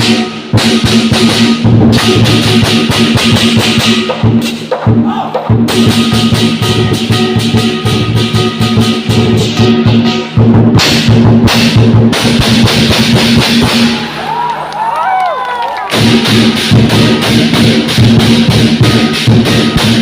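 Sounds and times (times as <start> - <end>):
big drum beating fast: 0.0 - 14.2, 15.9 - 20.0
crashing cymbals: 5.7 - 14.2, 15.9 - 20.0.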